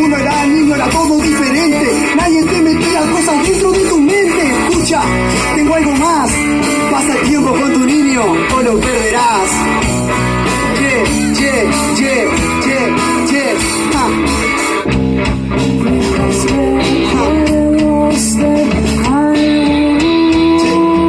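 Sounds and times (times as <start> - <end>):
electric guitar bending notes: 0.0 - 21.0
live rock band playing: 0.0 - 21.0.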